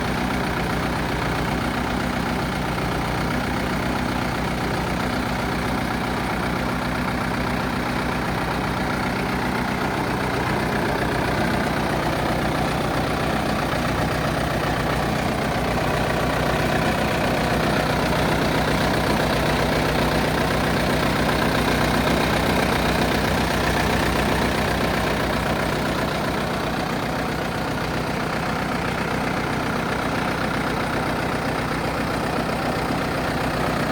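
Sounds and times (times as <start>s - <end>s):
tractor diesel engine idling: 0.0s - 33.9s.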